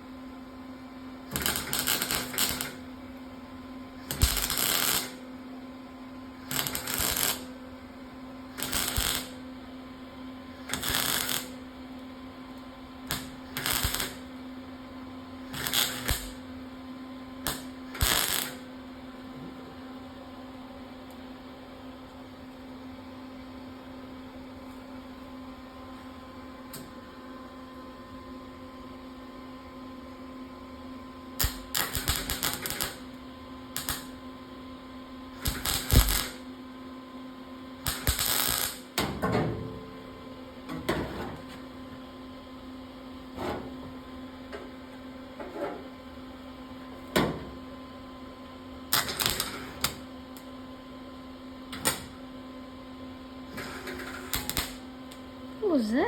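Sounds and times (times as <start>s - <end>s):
steady electrical hum: 0.0s - 56.0s
loud welding pop: 1.3s - 2.8s, 4.1s - 5.2s, 6.5s - 7.5s, 8.6s - 9.4s, 10.7s - 11.6s, 13.1s - 14.2s, 15.5s - 16.4s, 17.4s - 18.6s, 31.4s - 33.1s, 33.8s - 34.1s, 35.4s - 36.4s, 37.8s - 39.2s, 48.9s - 50.0s, 51.8s - 52.2s, 53.6s - 54.8s
welding arc crackling: 1.3s - 2.9s, 4.1s - 5.2s, 6.5s - 7.6s, 8.6s - 9.4s, 10.7s - 11.7s, 13.1s - 14.3s, 15.5s - 16.4s, 17.4s - 18.7s, 31.4s - 33.2s, 33.8s - 34.1s, 35.4s - 36.4s, 37.8s - 38.9s, 48.9s - 50.0s, 53.6s - 54.8s.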